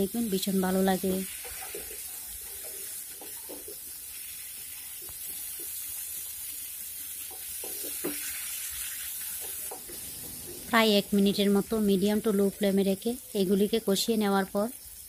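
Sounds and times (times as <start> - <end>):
vegetables sizzling in oil: 0.0 - 15.0
spatula scraping a pan: 1.3 - 6.2, 7.2 - 10.7.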